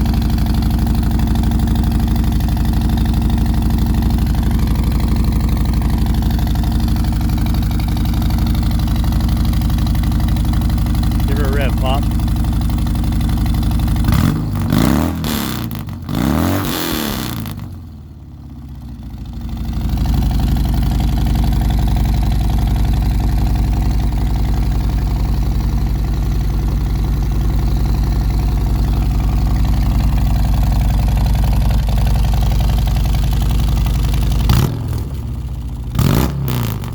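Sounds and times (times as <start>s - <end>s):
car engine revving and idling: 11.3s - 12.3s, 13.9s - 17.8s, 34.4s - 36.9s.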